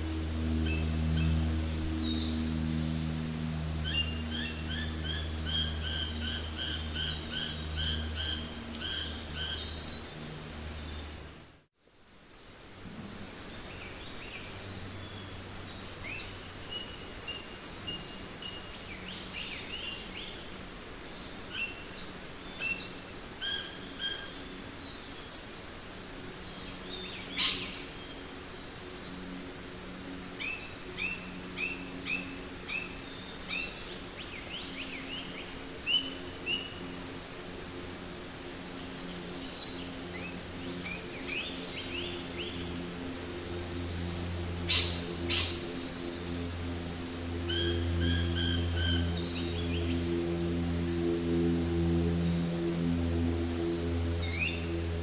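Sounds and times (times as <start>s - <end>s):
low steady hum: 0.0s - 55.0s
birds chirping and calling: 44.0s - 45.8s.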